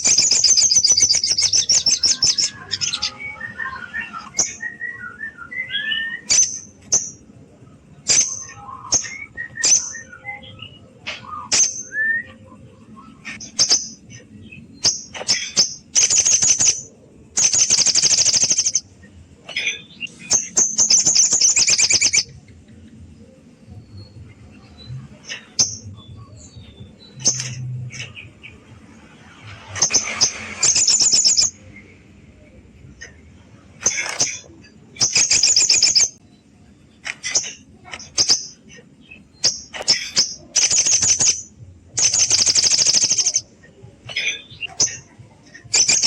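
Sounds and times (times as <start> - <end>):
sunbird high chirps and trills: 0.0 - 7.3, 8.0 - 18.8, 19.6 - 22.4, 30.0 - 31.9, 34.2 - 36.5, 37.3 - 43.5.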